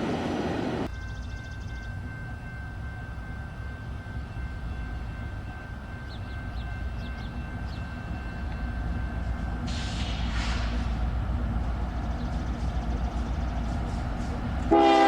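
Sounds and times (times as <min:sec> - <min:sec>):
railroad cars rolling past: 0:00.0 - 0:15.0
loud hiss burst: 0:09.7 - 0:11.0.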